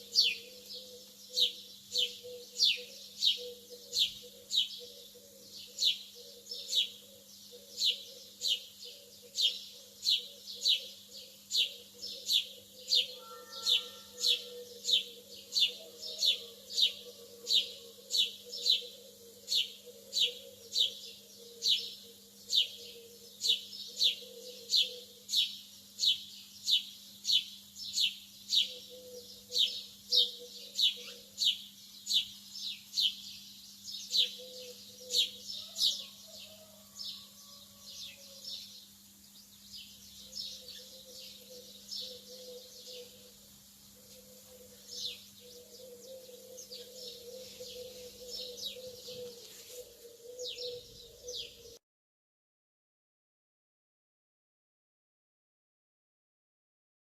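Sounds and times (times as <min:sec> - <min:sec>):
lovebird chirping: 0:44.0 - 0:51.8.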